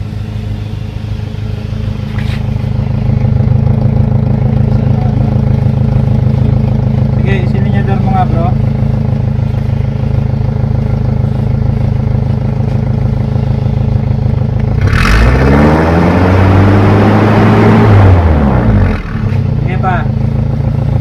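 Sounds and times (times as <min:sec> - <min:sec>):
pickup engine idling and revving: 0:00.0 - 0:21.0.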